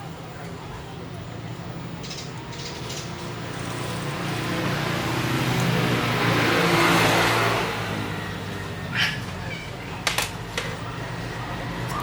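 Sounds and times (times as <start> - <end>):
motor vehicle passing: 2.6 - 12.0.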